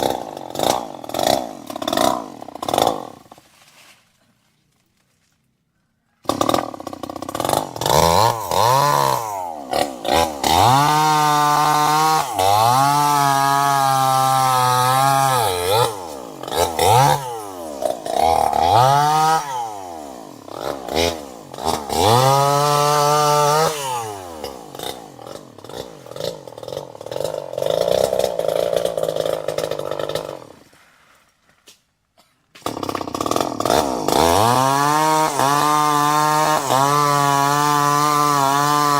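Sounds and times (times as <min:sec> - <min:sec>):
chainsaw engine revving: 0:00.0 - 0:03.4, 0:06.2 - 0:30.8, 0:32.6 - 0:38.9.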